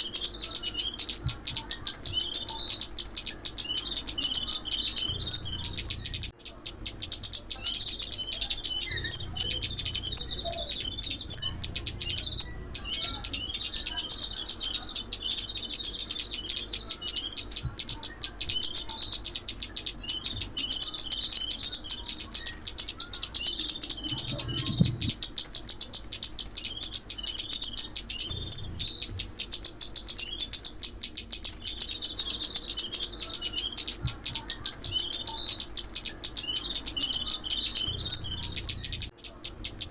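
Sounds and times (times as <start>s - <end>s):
high-pitched bird twittering: 0.0s - 39.9s
thin steady high whine: 0.0s - 39.9s.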